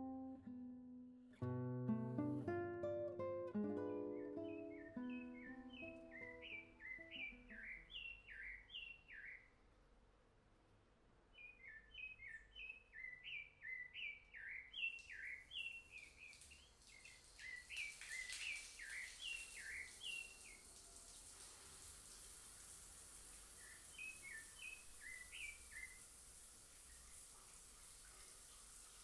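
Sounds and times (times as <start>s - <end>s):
faint steady hiss: 1.4s - 29.0s
small bird chirping: 3.9s - 9.6s, 11.4s - 21.1s, 23.3s - 28.4s.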